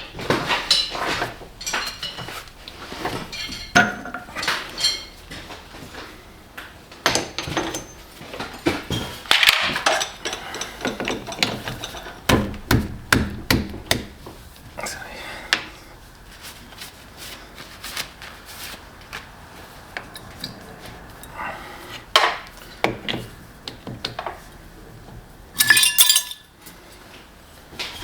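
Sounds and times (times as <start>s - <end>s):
metal tools knocking and clinking: 3.3s - 5.2s, 7.1s - 12.4s, 25.6s - 26.5s.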